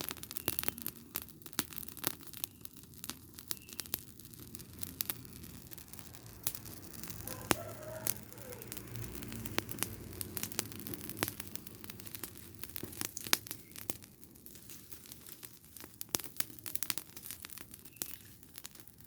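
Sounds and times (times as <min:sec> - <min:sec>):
fire crackling and popping: 0:00.0 - 0:19.0
low steady rumble: 0:04.2 - 0:12.9.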